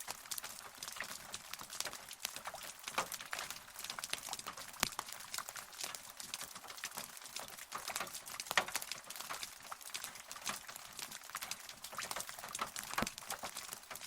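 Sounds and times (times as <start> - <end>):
rain drops pattering: 0.0 - 14.0.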